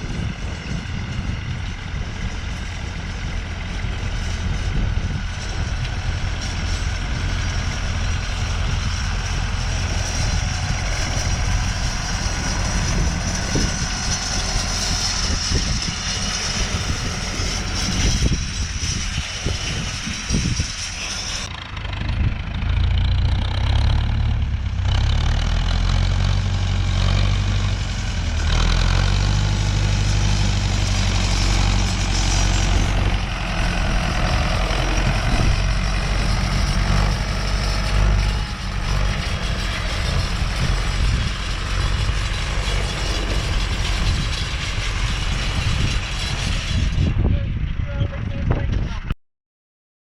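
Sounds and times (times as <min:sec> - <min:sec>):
tractor diesel engine running: 0:00.0 - 0:48.8.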